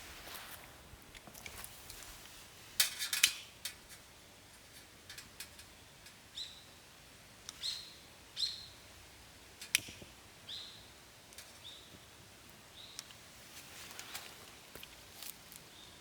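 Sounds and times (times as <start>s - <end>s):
sharp clicks: 9.6s - 10.1s.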